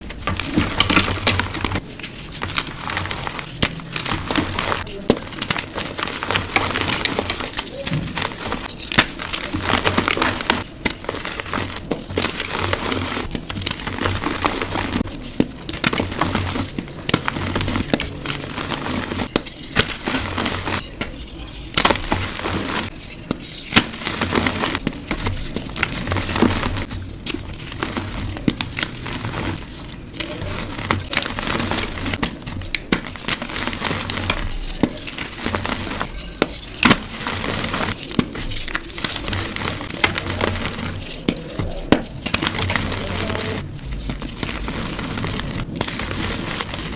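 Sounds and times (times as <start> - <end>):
chalk blocks crunching: 0.0 - 46.9.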